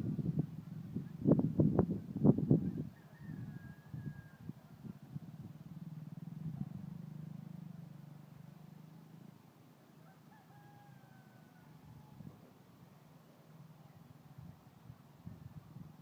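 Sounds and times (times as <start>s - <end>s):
passing vehicle engine: 0.0s - 1.9s, 5.0s - 9.9s.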